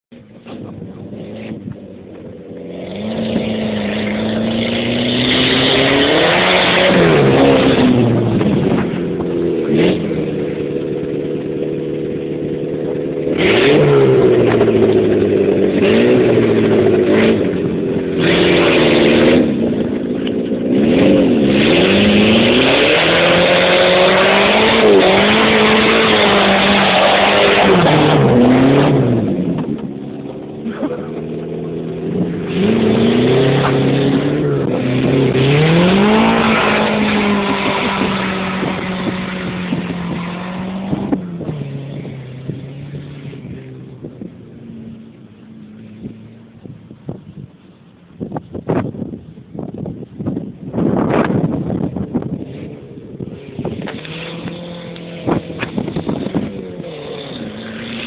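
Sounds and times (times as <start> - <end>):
car engine revving: 0.2 - 47.4, 50.4 - 58.0.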